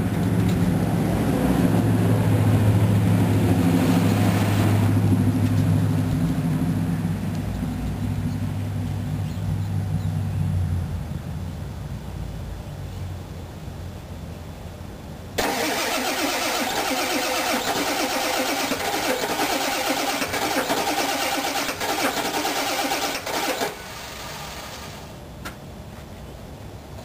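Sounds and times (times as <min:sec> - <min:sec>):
diesel engine cranking: 0:15.4 - 0:25.2.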